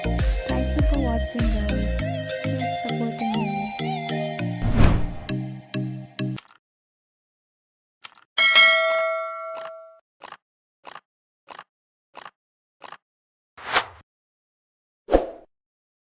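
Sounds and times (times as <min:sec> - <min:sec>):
whoosh: 0:04.6 - 0:05.4
bell-like ding: 0:08.4 - 0:10.0.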